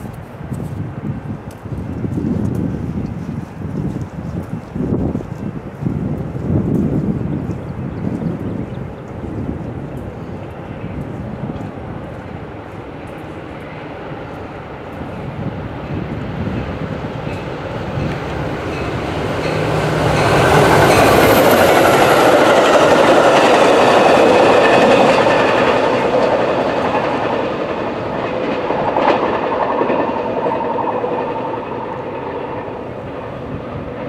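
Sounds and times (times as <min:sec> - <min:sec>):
diesel train passing: 0:00.0 - 0:34.0.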